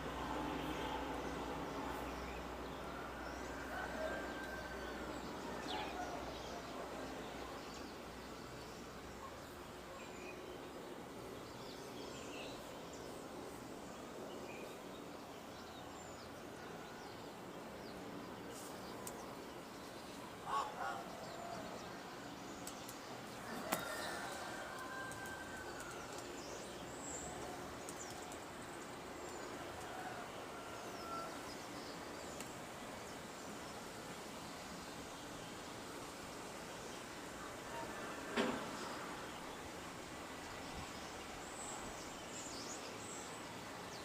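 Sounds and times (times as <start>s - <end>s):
outdoor background noise: 0.0s - 44.0s
bird calls: 20.0s - 21.8s.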